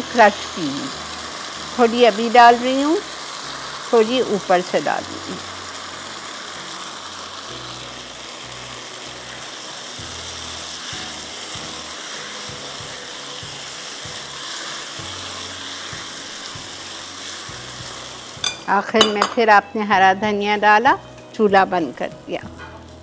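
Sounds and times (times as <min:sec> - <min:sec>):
spatula turning food: 0:00.0 - 0:19.6
potatoes sizzling in oil: 0:00.0 - 0:23.0.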